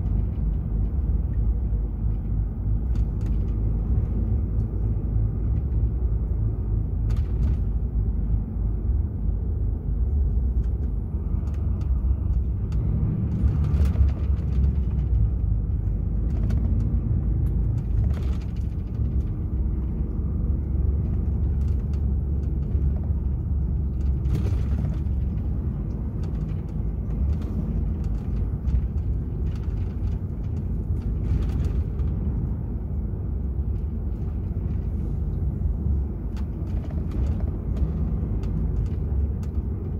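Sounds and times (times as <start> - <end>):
truck diesel engine rumbling: 0.0 - 39.9.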